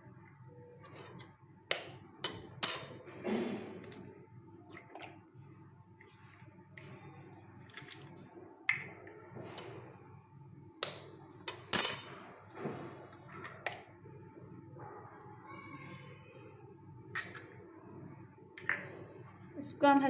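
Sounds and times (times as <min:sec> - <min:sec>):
dishes and utensils clinking: 0:02.2 - 0:03.7, 0:11.5 - 0:12.3.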